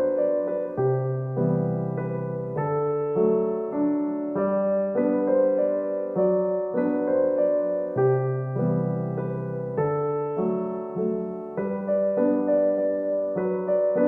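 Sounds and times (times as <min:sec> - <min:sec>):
electric piano melody: 0:00.0 - 0:14.0.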